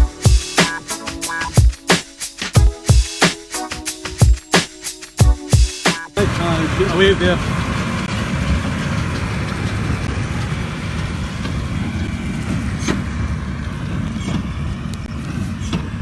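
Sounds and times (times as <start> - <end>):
tractor and baler rumble: 6.2 - 16.0.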